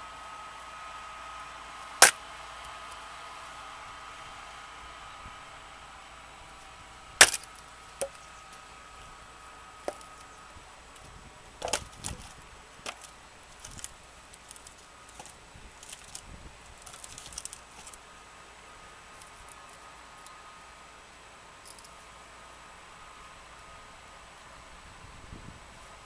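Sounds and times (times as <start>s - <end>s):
axe striking log: 7.2s - 8.2s, 11.6s - 12.2s
split wood clattering: 7.2s - 8.6s, 9.9s - 10.3s, 11.6s - 18.0s.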